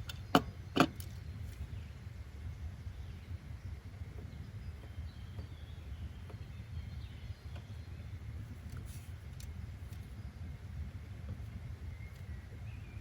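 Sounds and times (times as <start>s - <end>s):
faint bird chirps: 11.8s - 13.0s.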